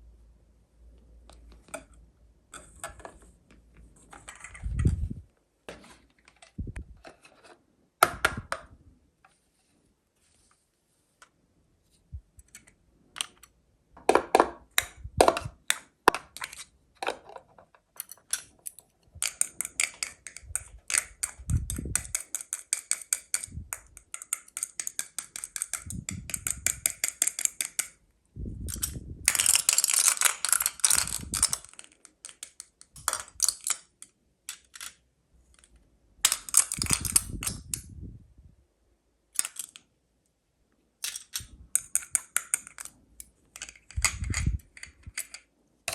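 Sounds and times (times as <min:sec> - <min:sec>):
plastic toy pieces clicking: 0:18.0 - 0:28.0, 0:28.6 - 0:37.9, 0:39.4 - 0:39.9, 0:41.0 - 0:45.9.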